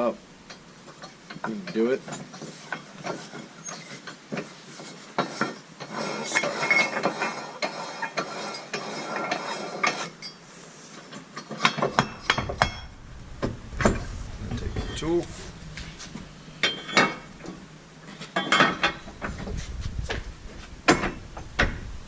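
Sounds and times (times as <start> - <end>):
metal clanks: 11.1 - 19.6, 20.8 - 21.9.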